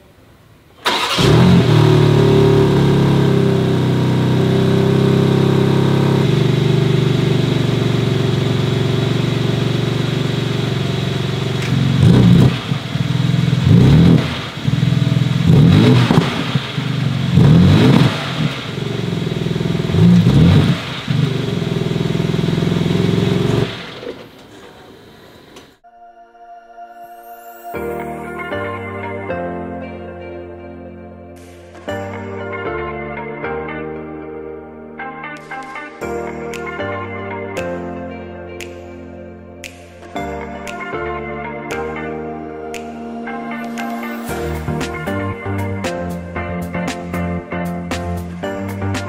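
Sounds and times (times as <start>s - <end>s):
car engine revving: 0.8s - 25.5s
car engine starting and idling: 0.8s - 25.8s.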